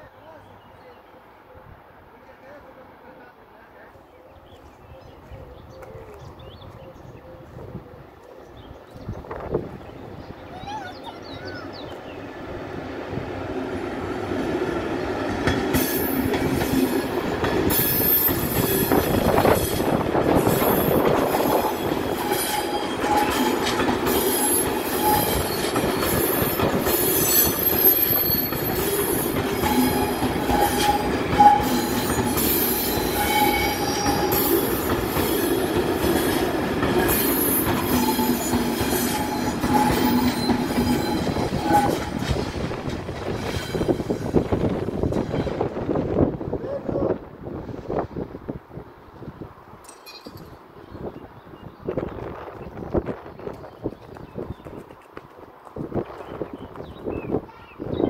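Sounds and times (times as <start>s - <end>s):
train wheels rumbling on rails: 5.7s - 50.8s
wheels clacking over rail joints: 14.2s - 46.3s
wheel squeal: 24.3s - 28.9s, 29.6s - 34.6s, 37.1s - 42.2s.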